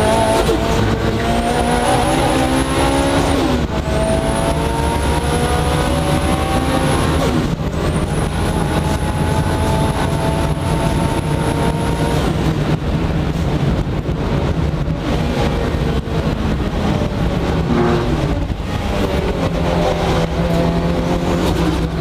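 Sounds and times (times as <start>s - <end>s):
car engine revving hard: 0.0s - 12.7s
high engine whine: 0.0s - 22.0s
road and wind noise: 0.0s - 22.0s.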